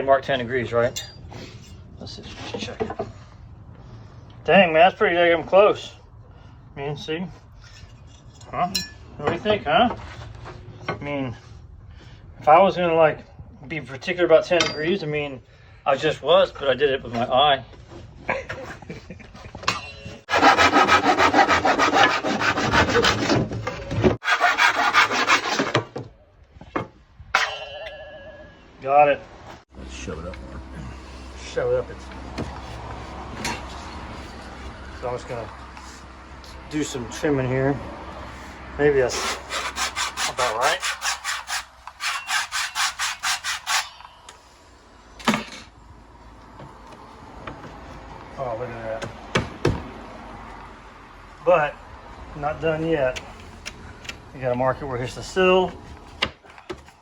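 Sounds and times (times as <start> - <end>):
hand saw cutting wood: 20.2 - 26.0, 39.0 - 44.1.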